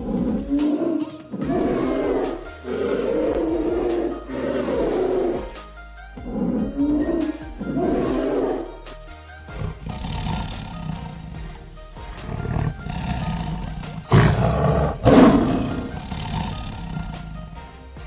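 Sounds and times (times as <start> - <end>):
wild animal roaring: 0.0 - 5.6, 6.4 - 8.8, 9.5 - 17.8
background music: 0.0 - 18.0.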